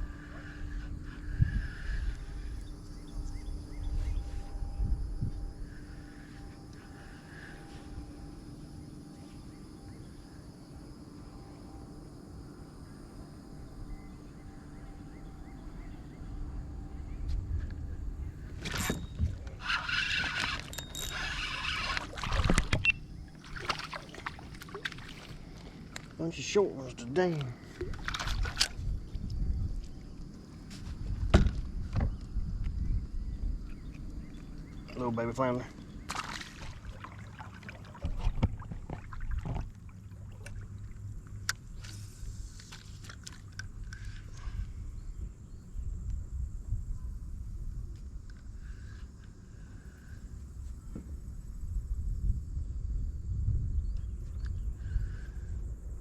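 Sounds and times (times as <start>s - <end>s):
water splashing around kayak: 18.6s - 26.2s, 27.6s - 28.8s, 36.0s - 44.2s
knocks against hull: 37.9s - 39.8s.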